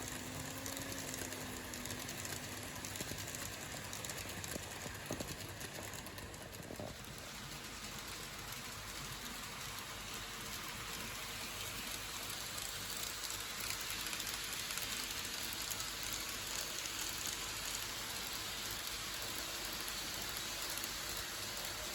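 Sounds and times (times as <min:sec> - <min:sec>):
model train wheels clattering: 0:00.0 - 0:21.9.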